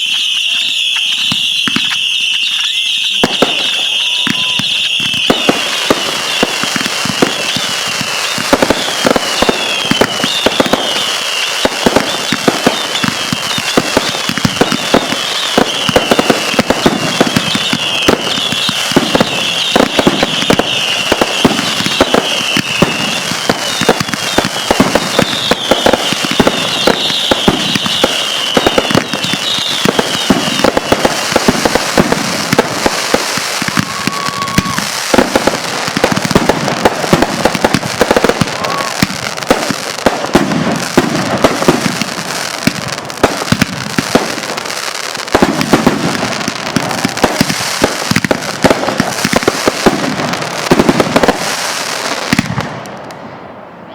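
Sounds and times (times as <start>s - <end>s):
high-pitched chirping whistle: 0.0s - 16.4s, 17.0s - 31.4s
fireworks popping and crackling: 0.0s - 53.9s.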